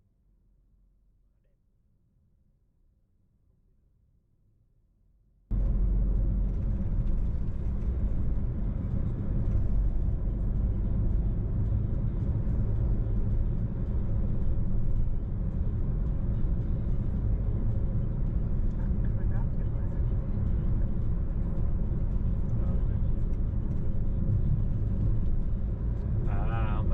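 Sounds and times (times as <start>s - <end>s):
car road and engine noise: 5.5s - 26.9s.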